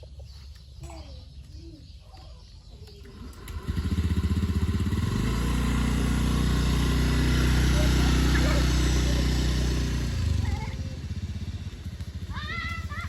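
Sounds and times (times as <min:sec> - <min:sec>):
motorcycle engine running: 0:02.9 - 0:13.0.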